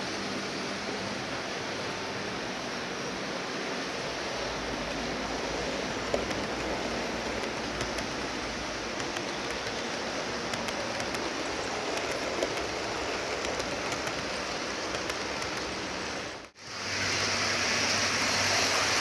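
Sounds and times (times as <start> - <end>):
model train running hum: 0.0 - 19.0
rail joint clicks: 4.6 - 16.6.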